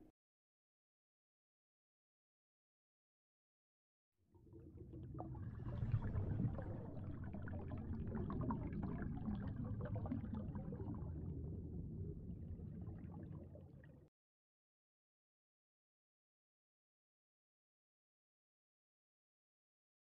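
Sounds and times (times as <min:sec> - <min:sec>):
underwater bubbling and gurgling: 0:04.4 - 0:14.1.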